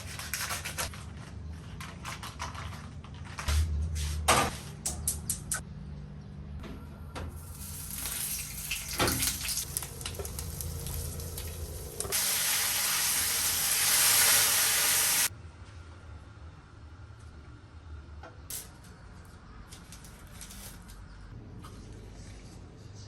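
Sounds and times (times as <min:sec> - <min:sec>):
loud steady hiss: 0:09.4 - 0:15.3.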